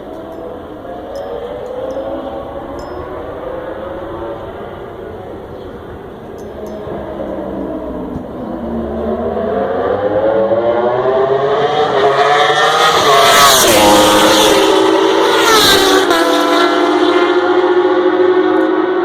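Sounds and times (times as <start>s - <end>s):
racing motorcycles passing: 0.0s - 19.0s.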